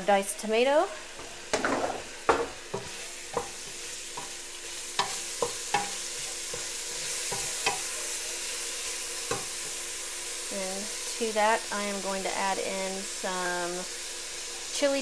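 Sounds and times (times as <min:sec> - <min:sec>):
food sizzling in a pot: 0:00.0 - 0:15.0
wooden spoon knocking on pot: 0:01.2 - 0:04.4, 0:05.0 - 0:07.9.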